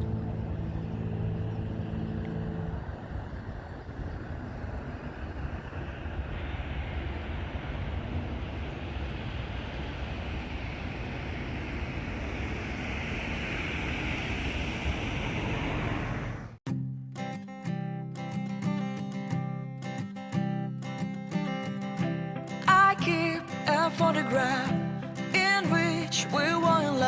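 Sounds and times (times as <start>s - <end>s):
rushing water roar: 0.0s - 16.6s.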